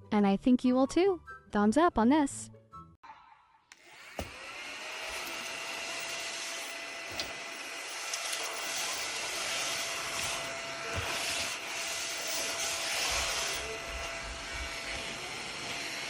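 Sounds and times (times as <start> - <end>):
vacuum cleaner motor whine: 3.8 - 16.0.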